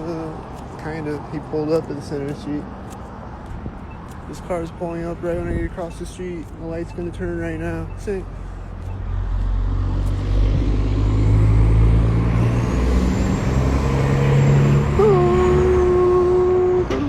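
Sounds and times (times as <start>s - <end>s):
vehicle engine passing close: 8.8s - 17.0s.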